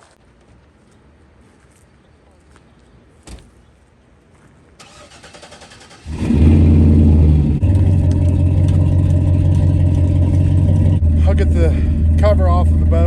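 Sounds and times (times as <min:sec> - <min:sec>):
engine starter cranking: 0:04.8 - 0:11.2
vehicle engine running loudly: 0:06.1 - 0:13.0.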